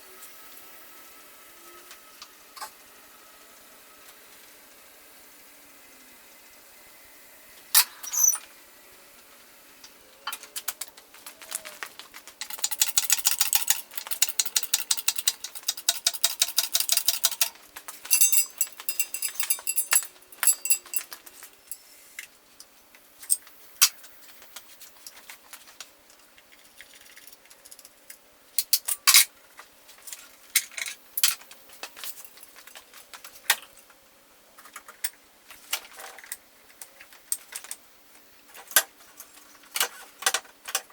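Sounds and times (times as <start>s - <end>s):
ratchet clicking: 12.4s - 21.2s
metal tools clinking: 12.4s - 22.0s, 30.6s - 32.6s.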